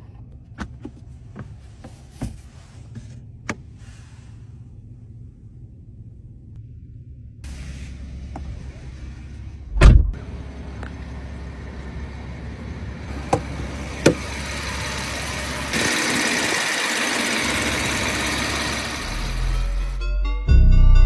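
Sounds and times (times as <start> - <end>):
car engine running: 0.0 - 20.0
loud thump: 9.8 - 10.2.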